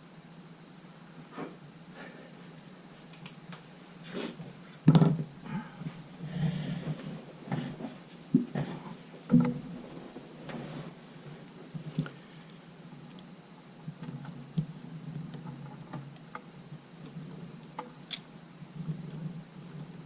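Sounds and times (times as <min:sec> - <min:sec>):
objects knocking on workbench: 0:04.9 - 0:05.3.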